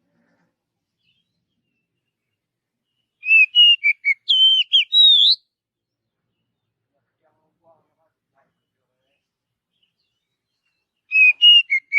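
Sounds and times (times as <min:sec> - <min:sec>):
bird singing whistled notes: 0:02.9 - 0:05.5, 0:09.7 - 0:11.9.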